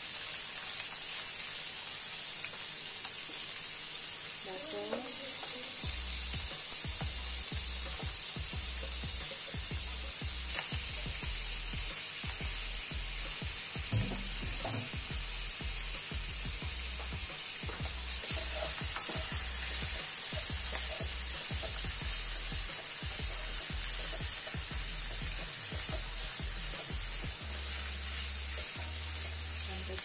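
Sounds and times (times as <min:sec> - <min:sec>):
meat sizzling in hot oil: 0:00.0 - 0:30.0
wooden spatula clicks and scrapes: 0:17.6 - 0:21.8.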